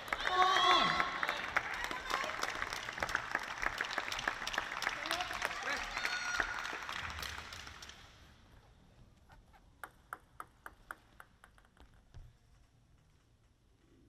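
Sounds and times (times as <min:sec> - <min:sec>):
crowd applause: 0:00.0 - 0:08.2
table tennis ball bouncing: 0:09.6 - 0:12.3.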